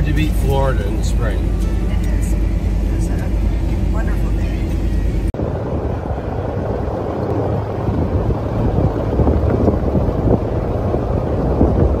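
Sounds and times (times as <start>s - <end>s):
wind buffeting microphone: 5.4s - 12.0s.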